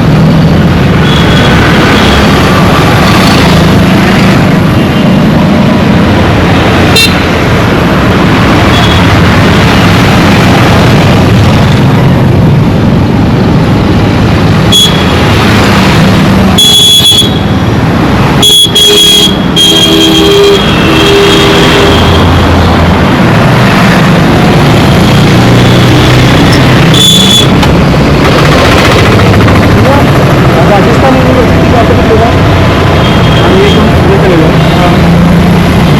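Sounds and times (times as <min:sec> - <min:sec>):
vehicle engines din: 0:00.0 - 0:35.9.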